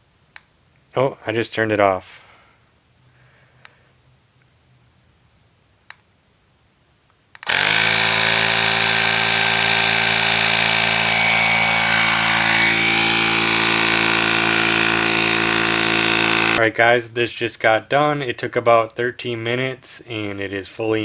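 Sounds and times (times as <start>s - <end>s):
faint click: 0.3s - 0.5s
tire inflator compressor droning: 7.4s - 16.6s.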